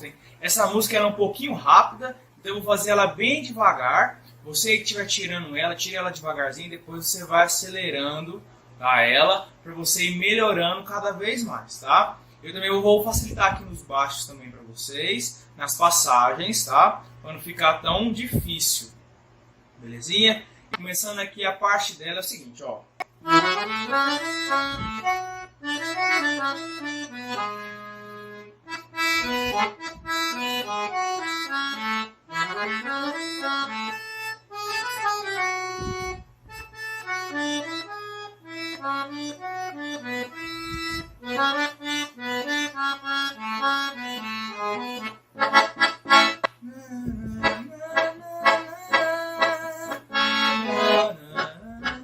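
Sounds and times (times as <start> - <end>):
accordion melody: 23.0 - 52.0.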